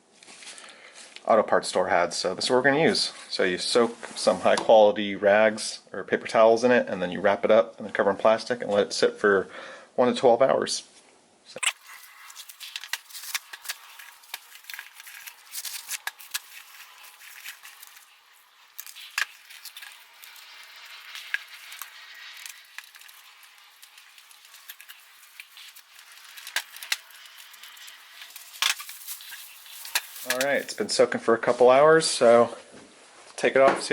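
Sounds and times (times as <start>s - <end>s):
plastic wrap crinkling: 11.6s - 30.9s.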